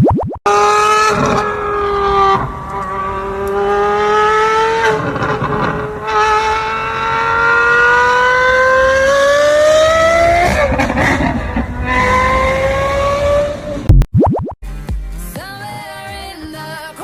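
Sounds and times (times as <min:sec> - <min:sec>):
car engine accelerating: 0:00.5 - 0:13.9.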